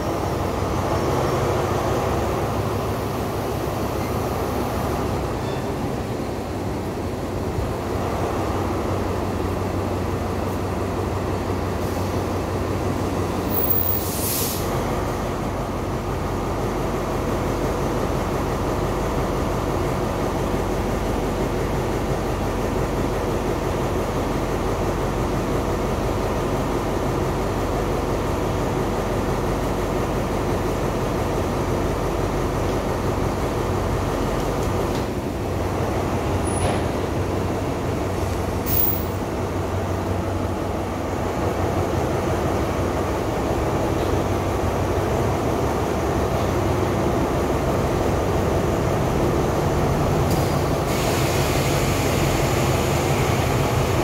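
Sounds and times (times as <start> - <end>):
diesel train running: 0.0 - 54.0
brief hiss: 13.6 - 14.7.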